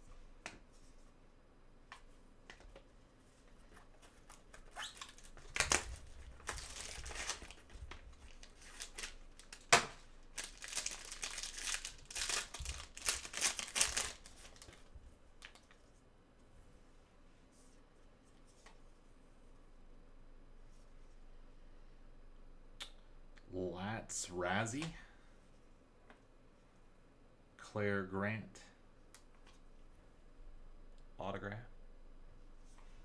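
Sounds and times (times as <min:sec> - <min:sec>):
wrapper tearing and crinkling: 0:04.3 - 0:15.6.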